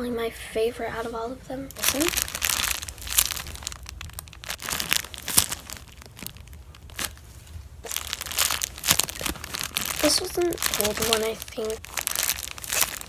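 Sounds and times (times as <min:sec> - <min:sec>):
squishy toy crinkling and rustling: 0:01.7 - 0:13.0.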